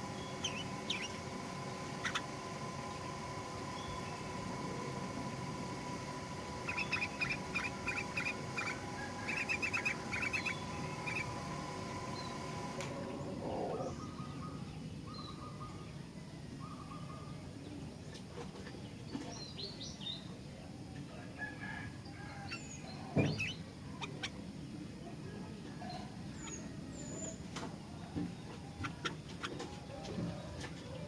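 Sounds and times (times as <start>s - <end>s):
low background hum: 0.0s - 31.0s
bird whistled notes and chirps: 6.7s - 11.4s.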